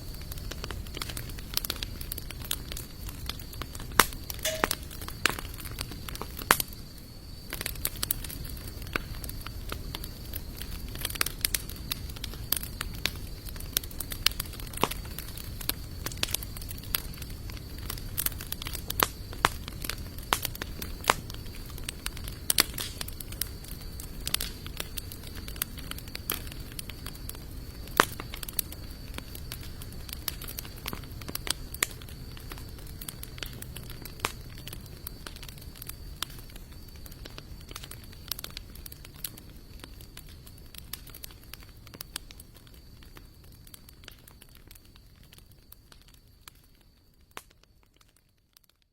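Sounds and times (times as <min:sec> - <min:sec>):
campfire crackling and popping: 0:00.0 - 0:48.9
faint high-pitched tone: 0:04.5 - 0:04.9.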